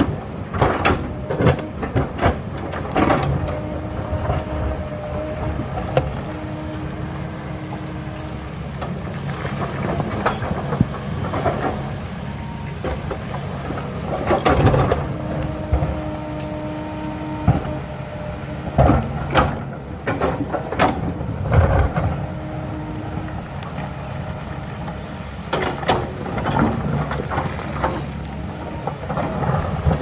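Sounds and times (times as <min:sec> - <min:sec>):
diesel engine rumbling: 0:00.0 - 0:30.0
digging clanks and scrapes: 0:25.5 - 0:30.0.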